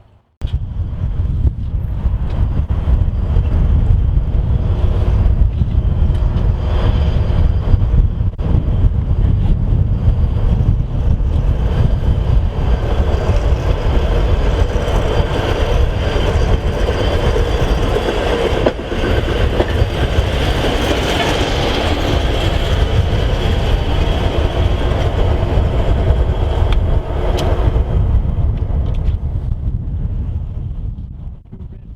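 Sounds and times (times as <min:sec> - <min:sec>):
train rumbling past: 0:00.5 - 0:30.7.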